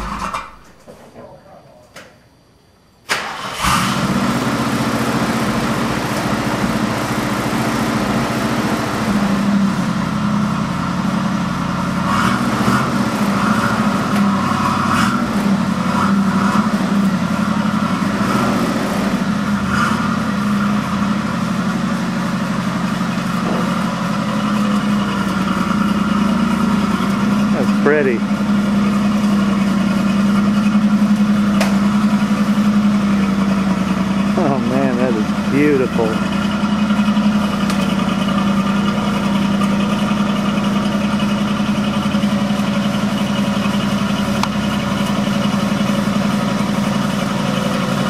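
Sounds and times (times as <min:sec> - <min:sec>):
car engine idling: 0:00.0 - 0:00.8, 0:03.2 - 0:48.0.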